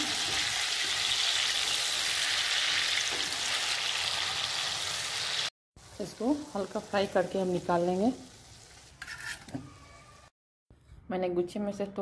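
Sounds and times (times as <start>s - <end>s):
grapes sizzling in hot oil: 0.0s - 9.2s.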